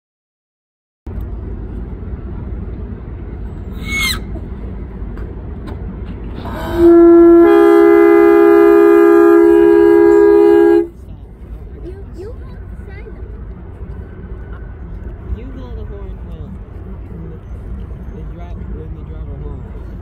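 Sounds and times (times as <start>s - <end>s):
low rumble: 1.1s - 20.0s
train air horn blast: 6.4s - 10.9s.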